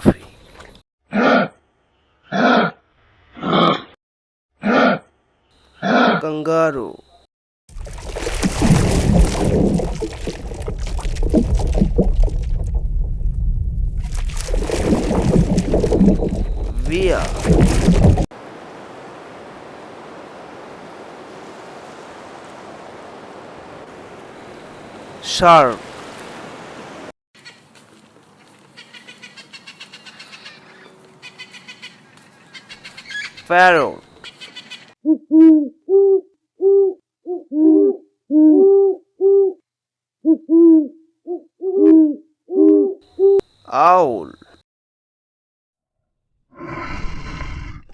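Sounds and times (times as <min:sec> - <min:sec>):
bird hooting calls: 0:32.6 - 0:34.8.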